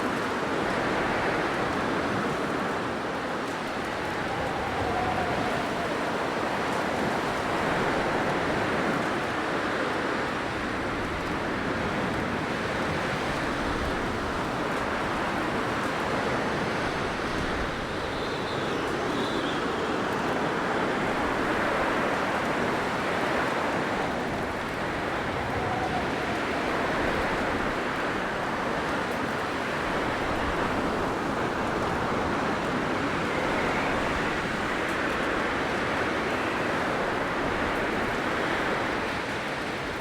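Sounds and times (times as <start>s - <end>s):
blizzard wind rushing: 0.3s - 40.0s
faint high whistle: 17.6s - 20.2s.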